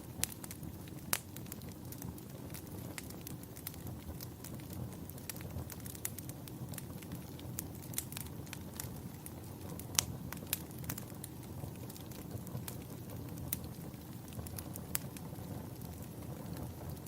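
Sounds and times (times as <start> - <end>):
burning wood crackling and popping: 0.0 - 17.0
low rumble of flames: 0.0 - 17.0.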